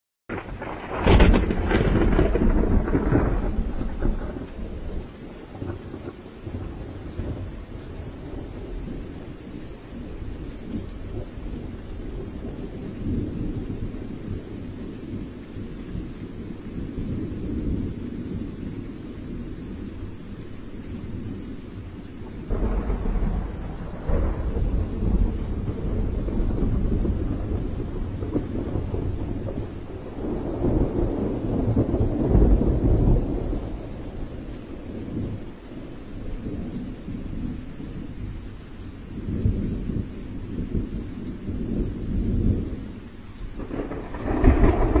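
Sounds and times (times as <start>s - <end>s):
thunder rolling: 0.3s - 7.5s, 22.4s - 35.4s, 43.6s - 45.0s
heavy rain: 0.3s - 45.0s.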